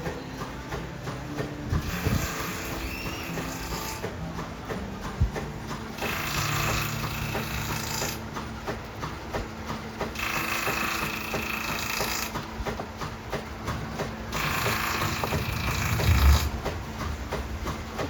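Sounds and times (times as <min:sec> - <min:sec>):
lathe machinery clicking and humming: 0:00.0 - 0:18.0
cutter hissing through wood: 0:01.7 - 0:04.2, 0:06.0 - 0:08.2, 0:10.1 - 0:12.5, 0:14.3 - 0:16.6.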